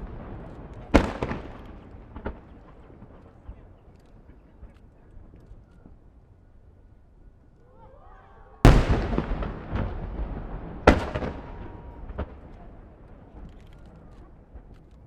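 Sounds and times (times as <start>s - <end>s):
firework shells booming: 0.0s - 3.4s, 8.7s - 13.5s
firework crackling: 0.0s - 4.3s, 8.7s - 14.8s
smaller firework bangs: 0.0s - 4.3s, 8.6s - 14.7s.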